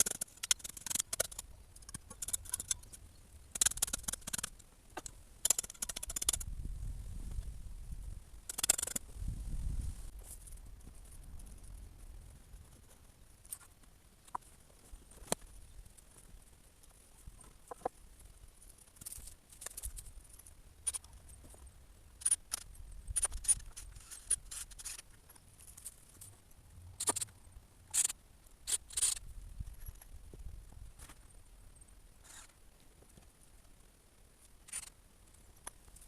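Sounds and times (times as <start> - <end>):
short clicks scrapes and rustles: 22.2 - 26.4, 27.0 - 30.1, 34.6 - 35.0.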